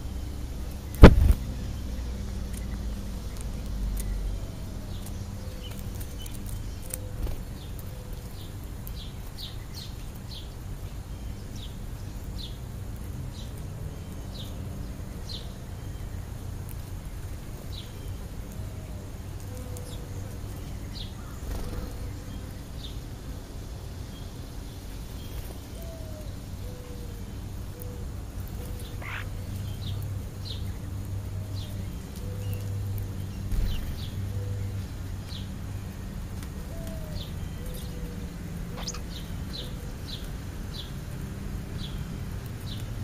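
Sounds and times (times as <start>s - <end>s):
birds chirping: 0.0s - 43.0s
low steady hum: 0.0s - 43.0s
sharp knock: 1.0s - 1.4s.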